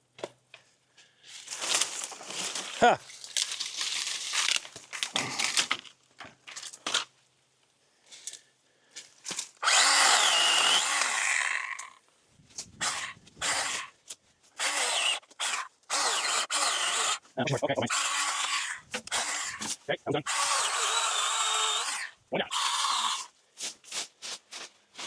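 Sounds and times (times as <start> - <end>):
branches crackling and rustling: 1.2 - 7.4
cutting tool motor whine: 9.6 - 12.0, 12.8 - 13.9, 14.6 - 23.3.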